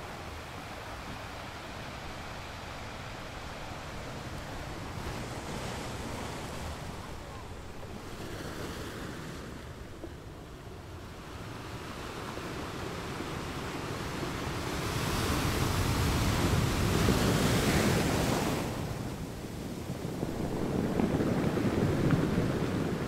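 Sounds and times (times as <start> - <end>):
sea waves washing: 0.0 - 23.0
wind buffeting microphone: 12.7 - 23.0.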